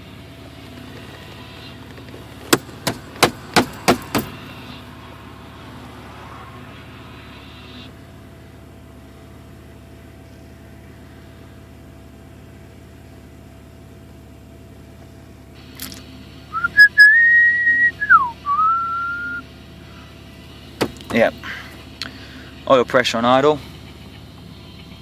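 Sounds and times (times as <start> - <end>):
car engine idling: 0.0 - 25.0
person whistling: 16.5 - 19.4.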